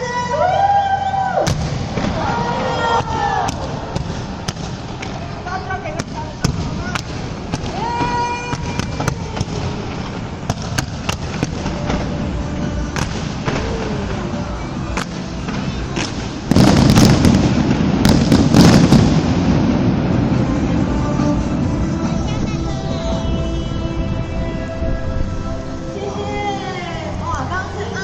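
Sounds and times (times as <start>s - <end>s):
fireworks banging and crackling: 1.5s - 23.2s.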